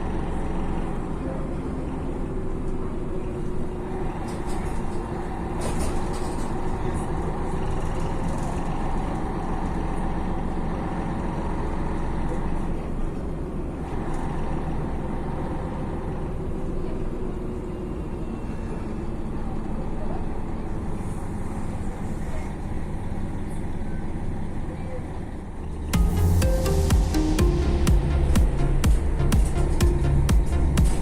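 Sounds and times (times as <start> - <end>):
bus engine and road noise: 0.0 - 31.0.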